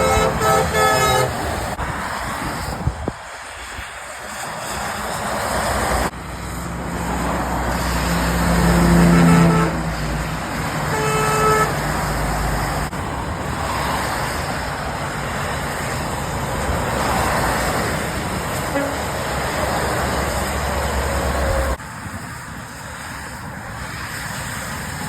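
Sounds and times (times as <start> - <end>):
vehicle horn toot: 0.0 - 1.5, 9.0 - 9.9, 10.9 - 11.8, 18.7 - 19.1
lorry engine passing: 0.0 - 22.3
tyres hissing on wet road: 0.0 - 25.0.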